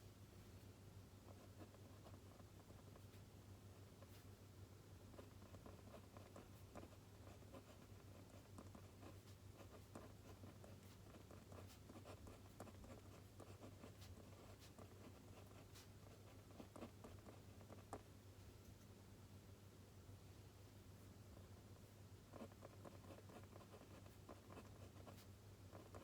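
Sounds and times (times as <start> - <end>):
pen scratching on paper: 5.1 - 18.1, 22.3 - 26.0.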